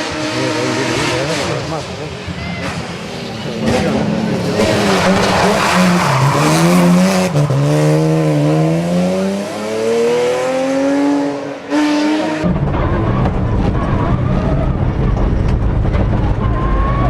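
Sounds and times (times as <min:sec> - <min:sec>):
car engine revving through gears: 0:03.5 - 0:13.4.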